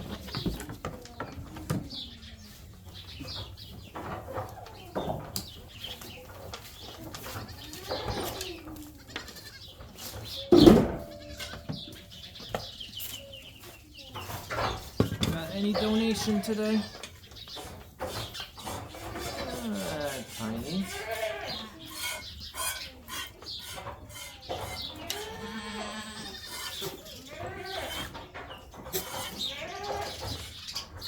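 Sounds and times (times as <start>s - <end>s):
knocks and rustling: 3.2s - 19.6s
goats bleating: 7.5s - 9.7s, 11.0s - 12.1s, 15.7s - 17.1s, 19.0s - 22.2s, 24.1s - 28.2s, 28.9s - 30.3s.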